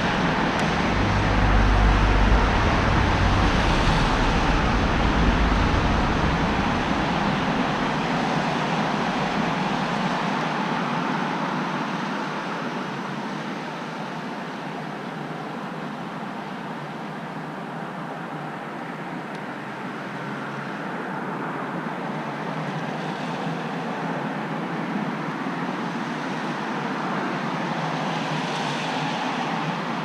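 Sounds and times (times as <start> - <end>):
passing vehicle rumble: 0.0 - 10.9
steady roadway hiss: 0.0 - 30.0.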